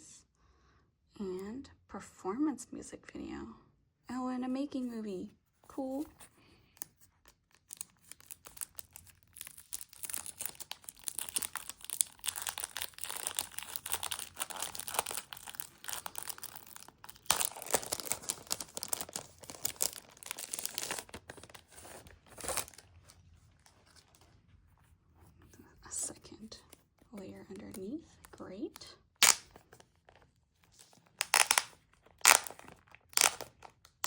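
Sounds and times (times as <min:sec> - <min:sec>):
plastic and paper packaging crinkling: 0:05.9 - 0:24.8, 0:29.2 - 0:34.0.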